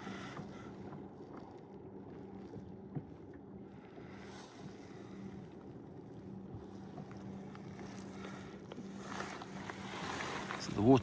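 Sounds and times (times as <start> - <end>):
water noise: 9.1 - 11.0.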